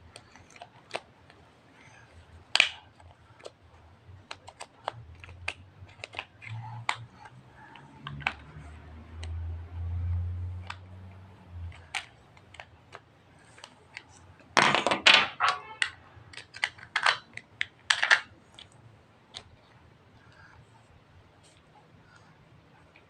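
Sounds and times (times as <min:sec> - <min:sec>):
plastic objects clicking and clattering: 0:04.2 - 0:08.5, 0:11.7 - 0:19.6.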